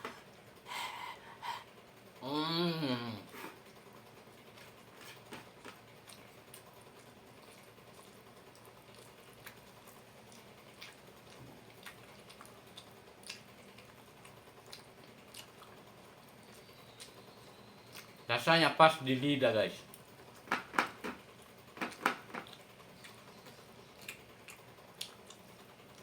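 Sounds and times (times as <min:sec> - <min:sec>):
chewing clicks and smacks: 0:04.5 - 0:18.3, 0:19.9 - 0:26.0.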